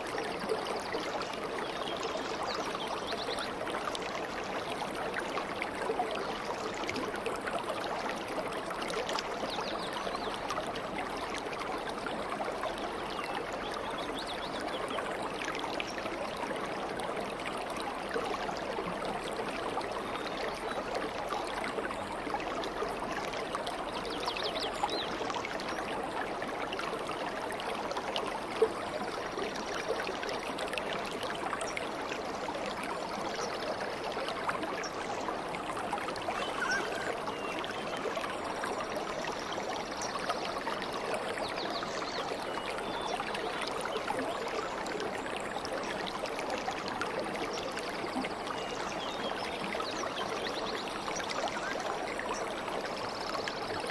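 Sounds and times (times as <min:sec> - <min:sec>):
stream babbling: 0:25.2 - 0:53.9
bird chirps: 0:36.3 - 0:37.6.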